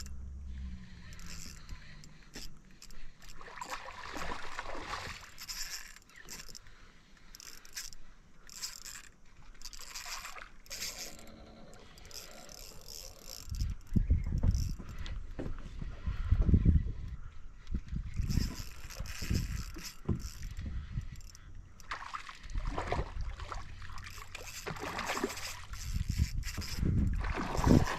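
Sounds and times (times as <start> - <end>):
water splashing around boat: 0.0 - 8.0, 21.8 - 27.9.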